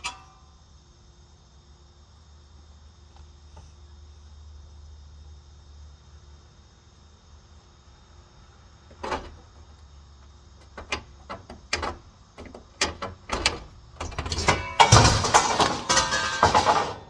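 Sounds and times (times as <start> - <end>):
irregular knocks and clicks: 10.6 - 17.0.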